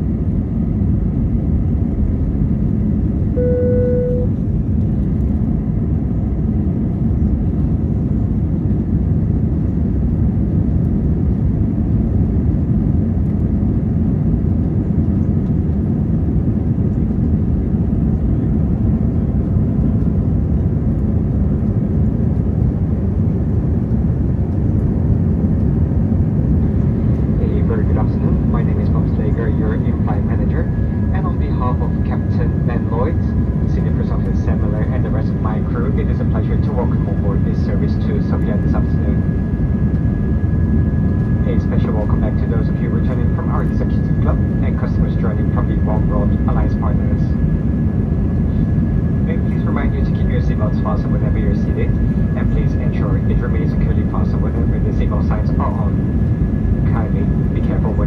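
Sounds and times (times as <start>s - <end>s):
airplane cabin engine rush: 0.0s - 58.0s
single-tone cabin chime: 3.4s - 4.4s.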